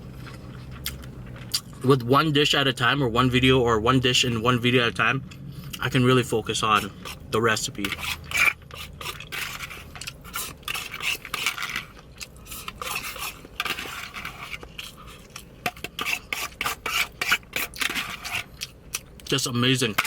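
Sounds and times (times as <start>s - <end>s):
cutlery scraping and clinking on dish: 7.8s - 11.9s, 12.5s - 18.5s.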